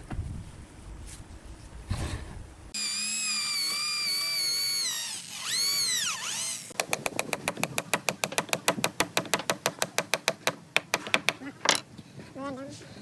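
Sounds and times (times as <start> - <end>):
power tool motor whining: 2.8 - 7.8
rapid even clicking: 6.7 - 11.4.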